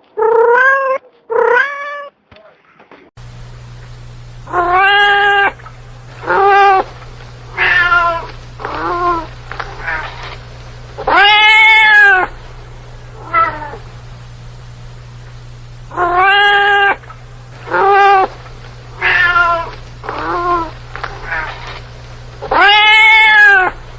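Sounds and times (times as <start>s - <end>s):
cat meowing: 0.2s - 2.1s, 4.5s - 5.6s, 6.2s - 6.9s, 7.5s - 10.3s, 11.0s - 12.3s, 13.2s - 13.8s, 15.9s - 17.0s, 17.7s - 18.3s, 19.0s - 21.7s, 22.4s - 23.8s
steady low hum: 3.2s - 23.9s.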